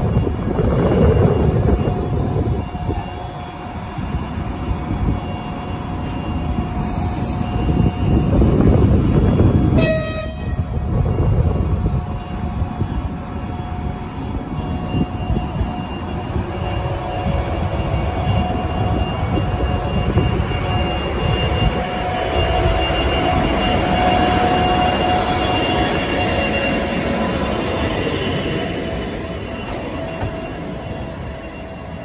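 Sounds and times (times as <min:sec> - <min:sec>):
train running on track: 0:00.0 - 0:32.0
locomotive horn toot: 0:09.8 - 0:10.7.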